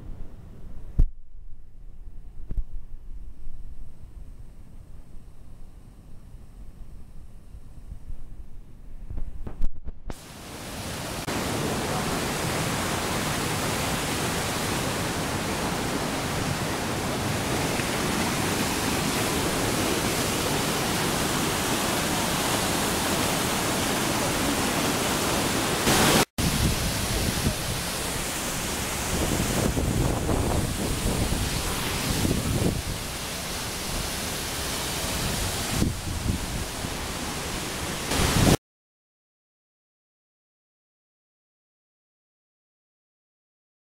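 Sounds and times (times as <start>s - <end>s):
waterfall rushing: 10.2s - 38.6s.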